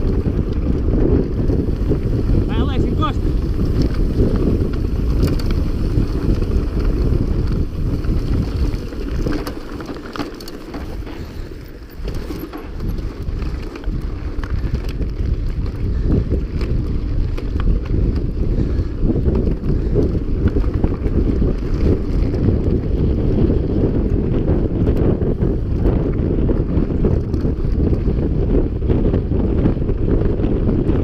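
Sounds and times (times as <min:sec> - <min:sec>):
wind buffeting microphone: 0:00.0 - 0:31.0
small clicks and rattles: 0:03.4 - 0:22.5.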